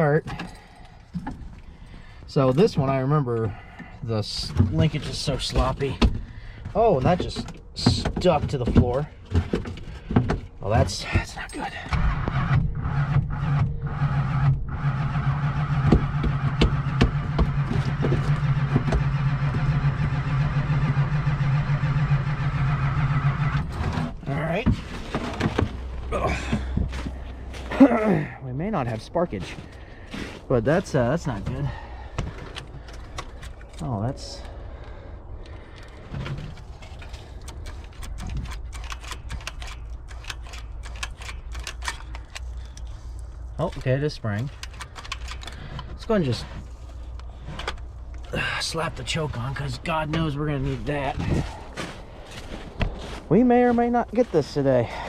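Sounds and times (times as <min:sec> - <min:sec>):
starter motor cranking engine: 0:11.7 - 0:28.4
sharp clicks: 0:37.3 - 0:42.9.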